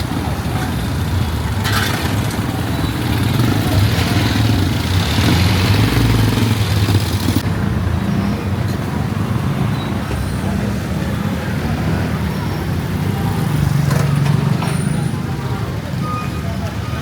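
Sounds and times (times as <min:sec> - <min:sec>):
street traffic: 0:00.0 - 0:17.0
vehicle engine humming: 0:00.0 - 0:17.0.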